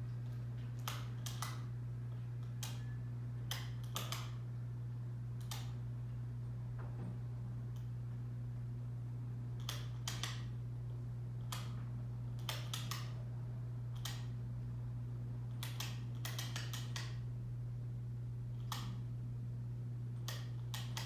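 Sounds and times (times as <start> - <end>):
ceiling fan motor hum: 0.0 - 21.0
sharp irregular clicks: 3.5 - 4.4, 15.6 - 17.2.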